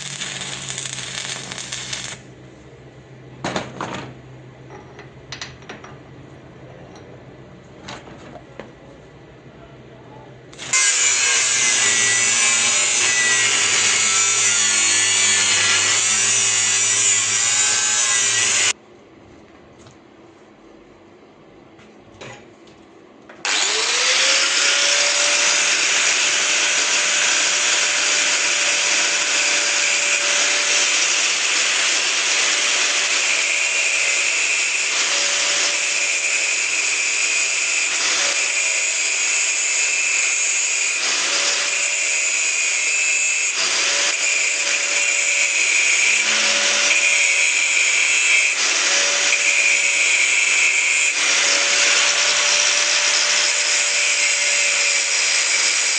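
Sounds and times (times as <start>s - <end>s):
electric power tool whining: 23.4s - 35.8s.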